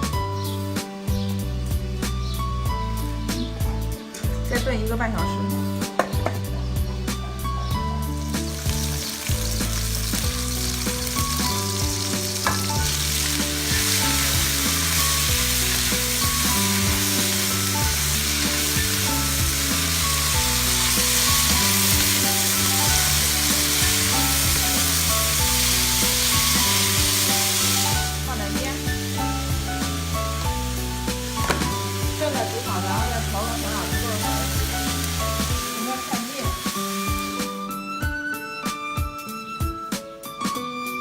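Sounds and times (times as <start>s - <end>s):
food sizzling in hot oil: 8.0s - 37.8s.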